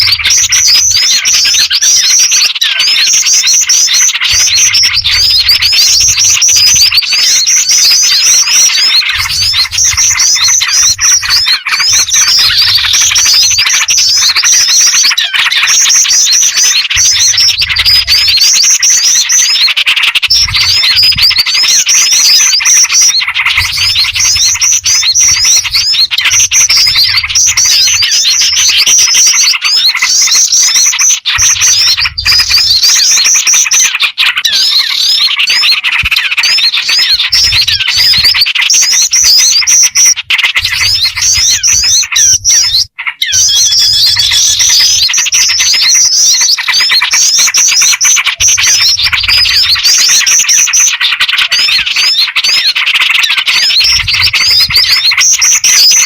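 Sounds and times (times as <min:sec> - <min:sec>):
bulbul calls: 0:00.0 - 0:56.0
small birds chirping: 0:00.0 - 0:56.0
flycatcher-shrike calls: 0:03.1 - 0:34.6.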